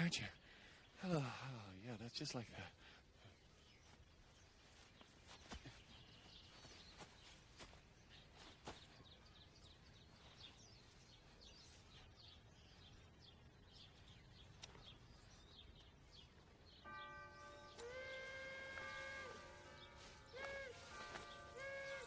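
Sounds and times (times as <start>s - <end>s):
faint bird chirping: 0.0s - 22.0s.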